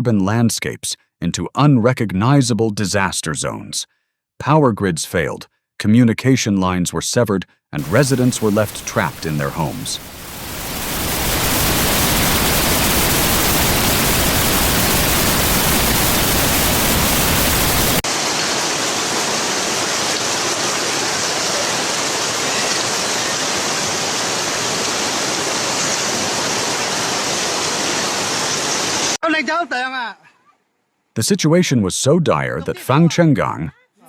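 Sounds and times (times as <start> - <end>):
rushing floodwater: 7.8 - 29.2.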